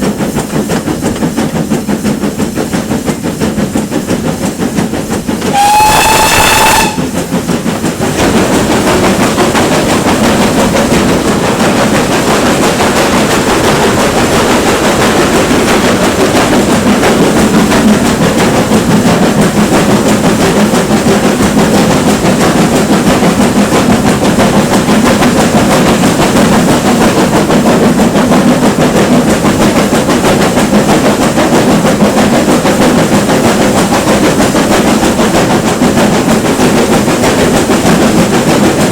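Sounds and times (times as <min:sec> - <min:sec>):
steam train running: 0:00.0 - 0:38.9
steam locomotive whistle: 0:05.5 - 0:07.2.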